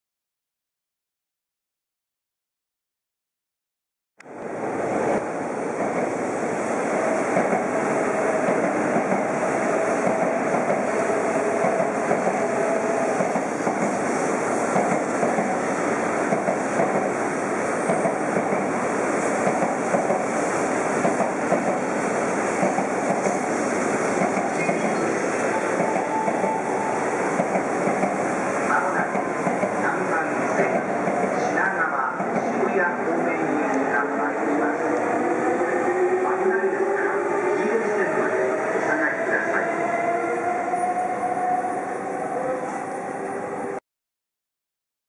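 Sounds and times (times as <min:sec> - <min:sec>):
train wheels on rails: 0:05.2 - 0:32.7.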